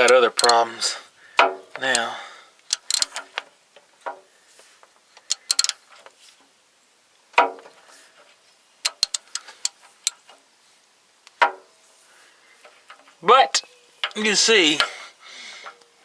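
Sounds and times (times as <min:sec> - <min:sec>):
metal tools clinking: 0:00.0 - 0:01.0, 0:02.7 - 0:03.4, 0:05.2 - 0:06.0, 0:08.8 - 0:10.3, 0:12.6 - 0:15.8.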